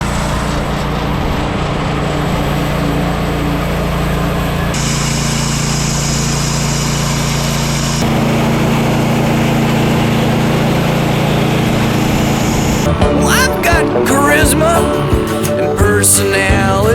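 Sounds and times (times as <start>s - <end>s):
engine running steadily: 0.0s - 13.2s.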